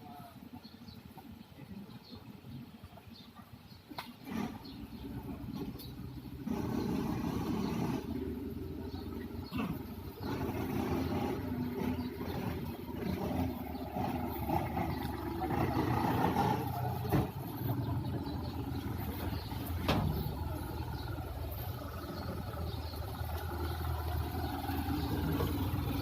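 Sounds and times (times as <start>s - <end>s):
boat engine running: 4.2s - 26.0s.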